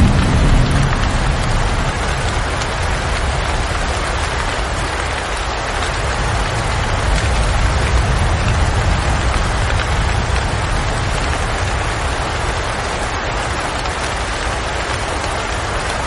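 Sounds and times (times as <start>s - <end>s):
low rumble: 0.0s - 3.9s
steady rain: 0.0s - 16.0s.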